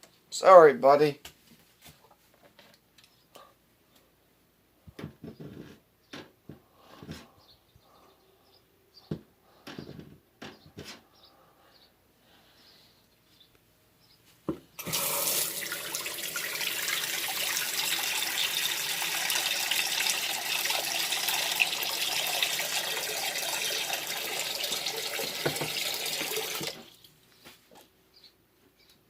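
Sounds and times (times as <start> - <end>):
tap running water into sink: 14.8 - 27.0.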